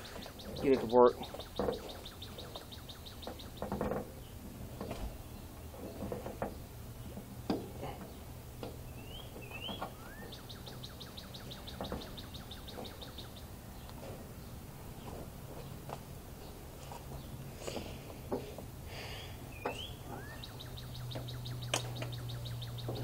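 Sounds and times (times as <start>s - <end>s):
bird trilling: 0.0s - 3.8s, 8.9s - 13.5s, 19.2s - 23.0s
rising bird whistles: 9.0s - 13.2s, 19.5s - 22.8s.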